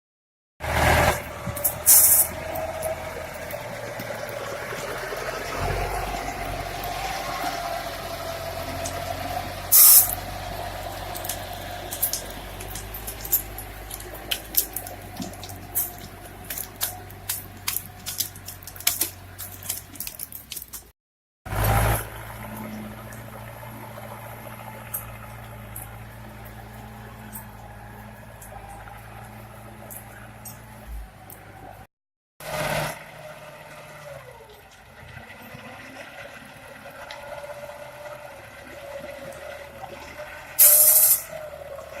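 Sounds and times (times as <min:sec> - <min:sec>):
heavy machinery engine hum: 0:00.6 - 0:20.8, 0:21.5 - 0:42.0
loud hissing burst: 0:09.7 - 0:10.2, 0:40.6 - 0:41.3
sharp cracks and snaps: 0:11.0 - 0:20.9.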